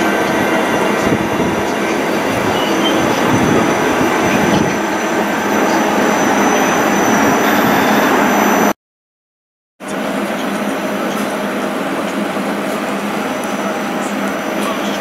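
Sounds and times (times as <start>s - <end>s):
train wheels rumbling on rail: 0.0s - 8.7s, 9.8s - 15.0s
high whines: 0.0s - 8.8s.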